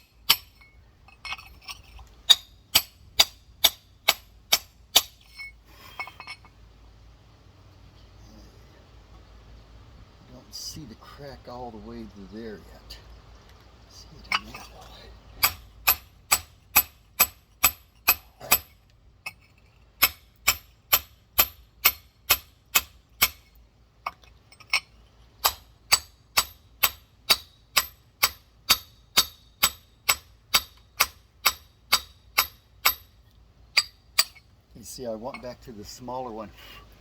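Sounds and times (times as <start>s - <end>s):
hammer clinking on rock: 0.0s - 6.5s, 14.3s - 14.8s, 15.4s - 33.1s, 33.7s - 34.5s.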